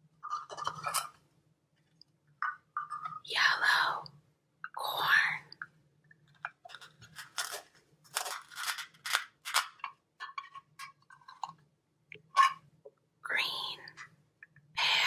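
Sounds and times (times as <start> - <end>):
hands handling plastic toys: 0.2 - 3.3, 6.1 - 12.7.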